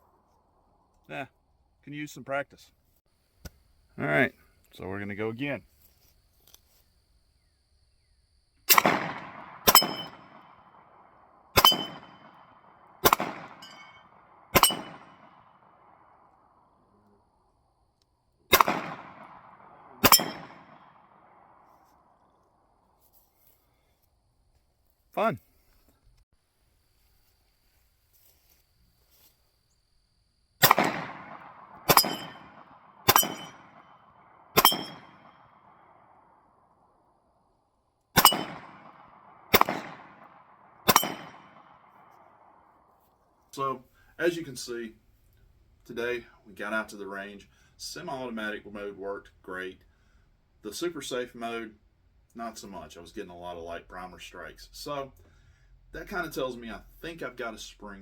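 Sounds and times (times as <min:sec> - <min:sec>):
gunshots: 0:08.7 - 0:16.3, 0:18.5 - 0:21.6, 0:30.6 - 0:36.2, 0:38.2 - 0:42.6
steel plate target clanging: 0:09.7 - 0:10.2, 0:11.6 - 0:12.3, 0:13.1 - 0:15.2, 0:20.0 - 0:20.6, 0:31.9 - 0:33.7, 0:34.6 - 0:35.2, 0:38.2 - 0:38.6, 0:40.9 - 0:41.4.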